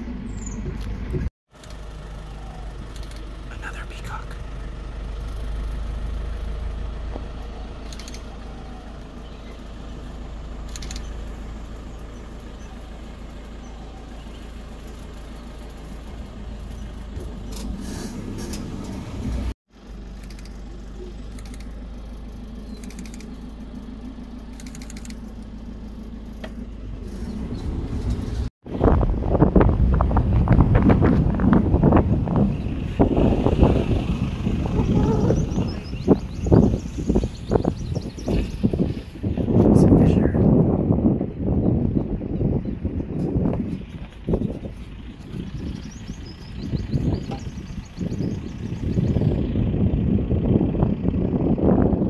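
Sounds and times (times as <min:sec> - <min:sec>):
vehicle engine rumbling: 0:00.0 - 0:52.0
wind buffeting microphone: 0:28.0 - 0:52.0.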